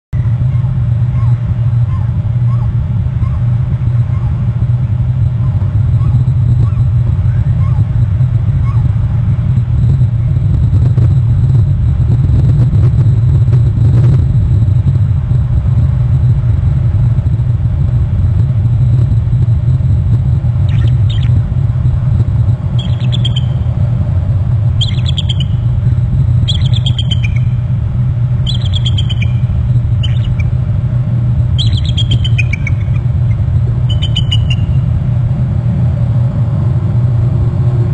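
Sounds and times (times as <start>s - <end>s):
low rumble: 0.1s - 37.9s
bird calling falling chirps: 20.7s - 21.4s, 22.8s - 23.8s, 24.8s - 25.8s, 26.4s - 27.8s, 28.4s - 30.6s, 31.5s - 34.9s.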